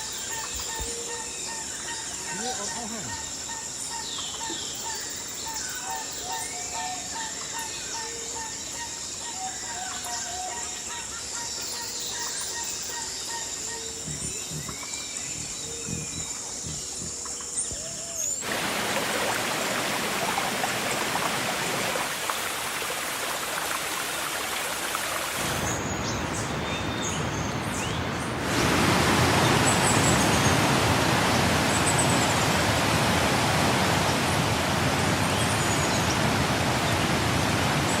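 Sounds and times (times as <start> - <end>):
water rushing: 18.4 - 38.0.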